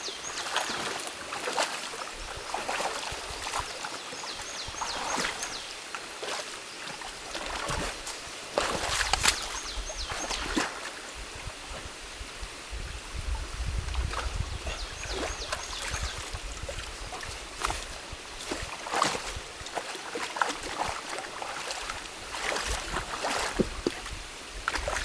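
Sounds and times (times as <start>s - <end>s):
stream water trickling: 0.0s - 25.0s
sticks and mud splashing: 7.4s - 10.8s, 16.8s - 25.0s.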